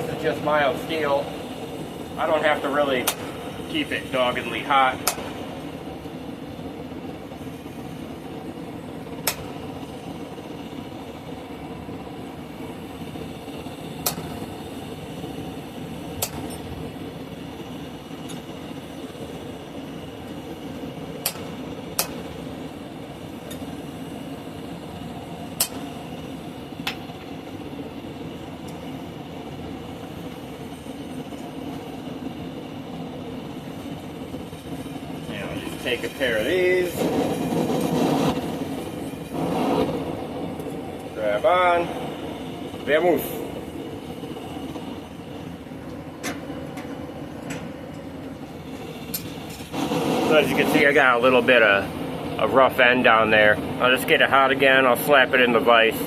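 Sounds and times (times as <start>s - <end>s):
steady rushing background noise: 0.0s - 56.0s.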